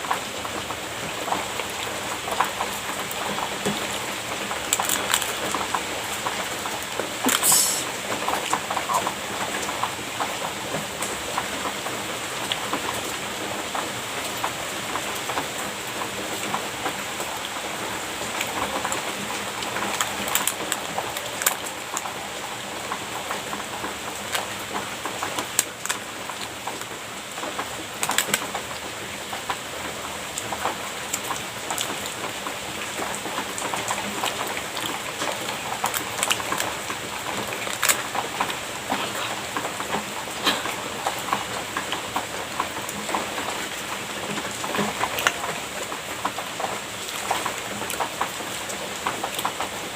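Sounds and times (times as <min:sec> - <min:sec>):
steady hiss: 0:03.4 - 0:09.4
person chewing wet mouth sounds: 0:08.8 - 0:09.1.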